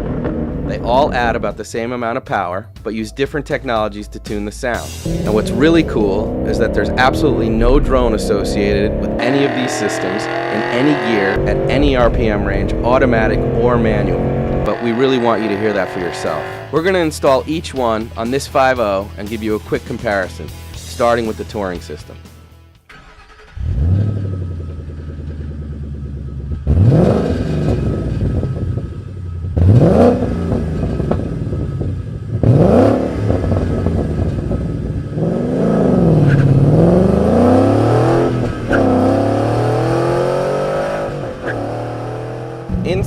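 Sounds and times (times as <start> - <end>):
car engine starting and idling: 0.0 - 1.6, 4.5 - 17.0, 22.8 - 43.0
engine revving: 4.7 - 17.4, 22.9 - 43.0.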